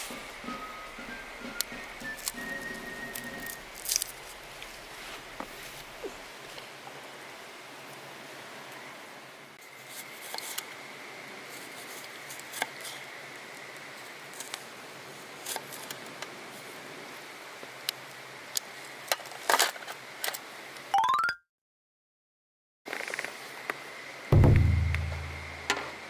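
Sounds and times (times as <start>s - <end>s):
wood fire crackling: 1.5s - 7.0s.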